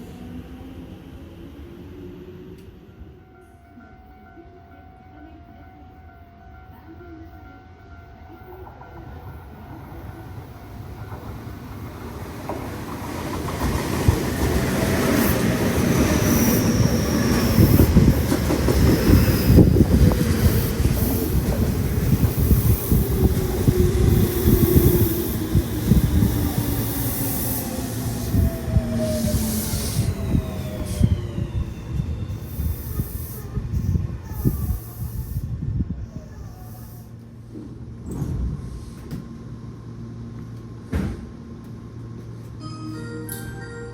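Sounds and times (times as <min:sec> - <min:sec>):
train wheels rumbling on rails: 0:08.6 - 0:42.6
train motor tones: 0:13.6 - 0:35.6
wheel squeal and hiss: 0:24.2 - 0:35.6.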